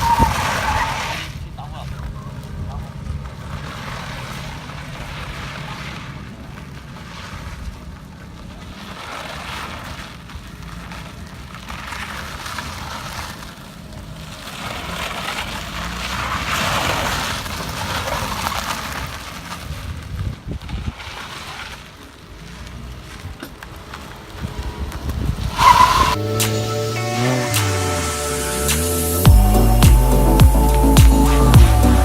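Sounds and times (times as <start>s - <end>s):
car engine running: 21.7s - 32.0s.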